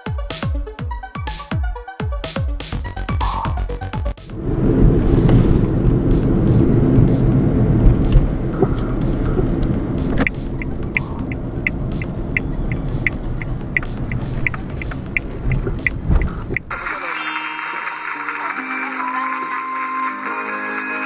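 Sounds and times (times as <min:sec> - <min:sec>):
car cabin road rumble: 0:03.2 - 0:17.0
high-pitched ticking: 0:06.2 - 0:18.4.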